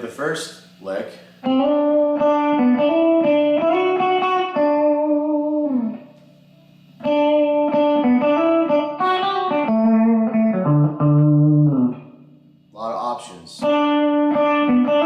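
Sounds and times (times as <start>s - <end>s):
electric guitar lead lick: 1.4s - 12.6s, 13.6s - 15.0s.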